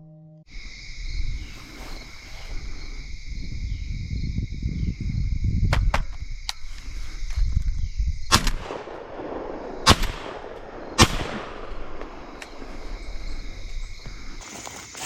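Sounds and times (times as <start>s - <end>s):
shotgun blasts with echo: 8.3s - 12.6s.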